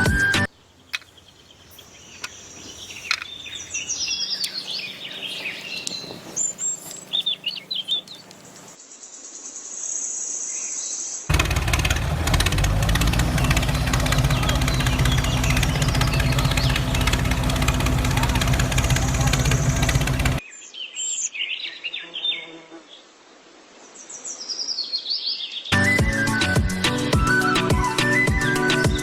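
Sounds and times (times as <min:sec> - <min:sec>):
birds chirping: 0:00.0 - 0:09.6, 0:12.4 - 0:22.2
small motor humming: 0:11.3 - 0:20.4.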